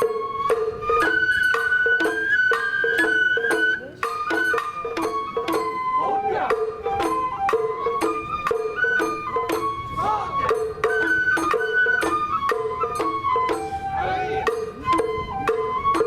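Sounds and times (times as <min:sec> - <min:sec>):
drum strikes: 0:00.0 - 0:05.8
bamboo flute melody: 0:00.0 - 0:16.0.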